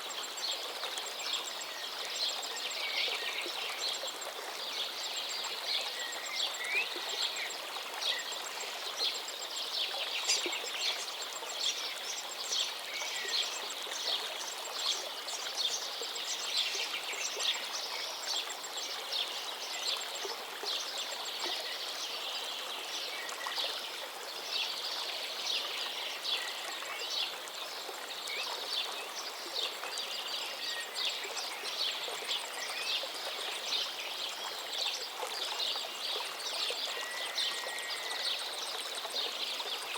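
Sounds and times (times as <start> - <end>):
small birds chirping: 4.7 - 23.8.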